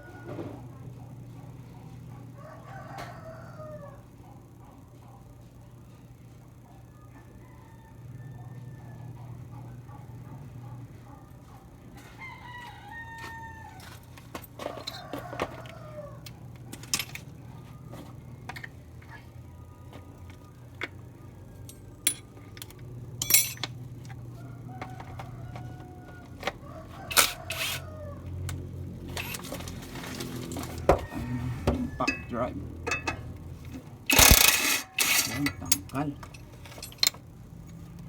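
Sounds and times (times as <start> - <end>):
rooster crowing: 0.0 - 0.8, 1.8 - 4.3, 6.8 - 9.6, 11.9 - 16.7, 23.4 - 33.2, 34.1 - 37.1.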